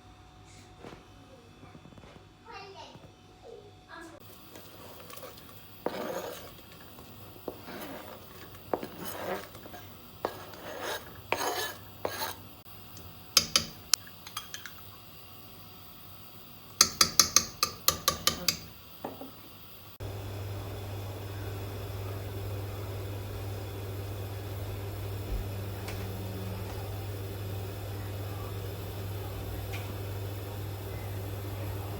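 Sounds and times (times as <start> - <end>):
steady mechanical hum: 0.0 - 31.9
utensils clinking against pots: 13.4 - 14.9.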